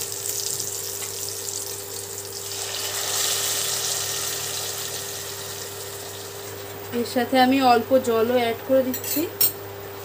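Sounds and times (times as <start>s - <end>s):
food sizzling in hot oil: 0.0s - 6.9s
dal poured into oil: 1.3s - 6.5s.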